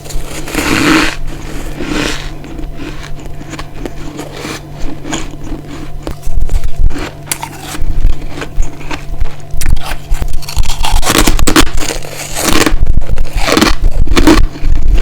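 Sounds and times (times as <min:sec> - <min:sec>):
biting into frozen ice: 0:00.0 - 0:15.0.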